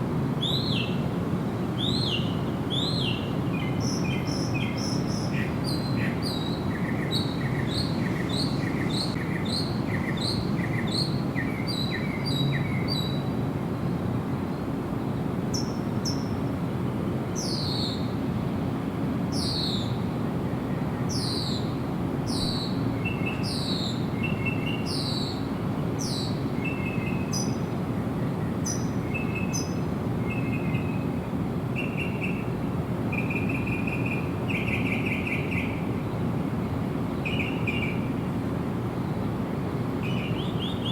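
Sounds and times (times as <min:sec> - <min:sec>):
songbirds singing: 0:00.4 - 0:13.4, 0:15.5 - 0:16.5, 0:17.3 - 0:18.2, 0:19.3 - 0:38.3, 0:38.9 - 0:40.9.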